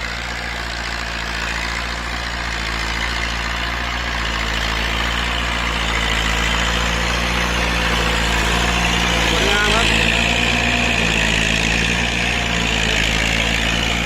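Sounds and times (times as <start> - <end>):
diesel tractor engine hum: 0.0 - 14.0.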